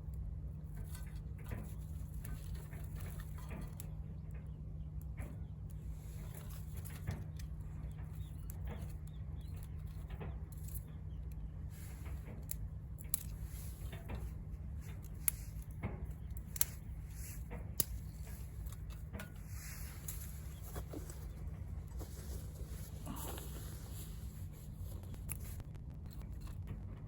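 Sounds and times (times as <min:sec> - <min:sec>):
wood fire crackling: 0:05.7 - 0:27.0
low rumble: 0:11.5 - 0:27.0.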